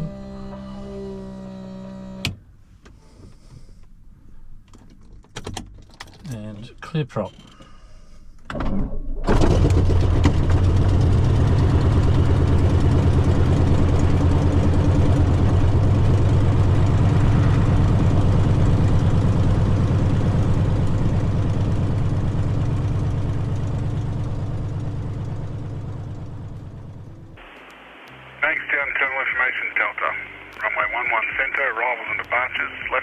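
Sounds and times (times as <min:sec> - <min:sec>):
aircraft piston engine starting and idling: 0:09.3 - 0:33.0
person speaking: 0:27.4 - 0:33.0.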